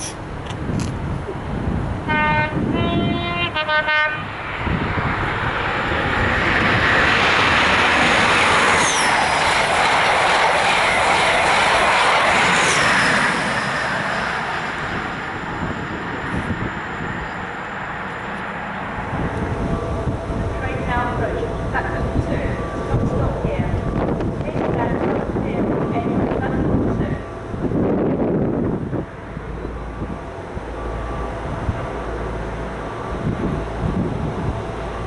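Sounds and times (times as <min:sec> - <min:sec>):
train passing at speed: 0:00.0 - 0:35.0
train horn blasts: 0:02.0 - 0:04.3.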